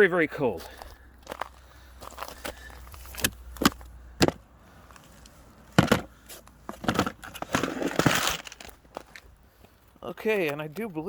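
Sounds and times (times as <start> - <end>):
rustling: 1.2 - 10.0.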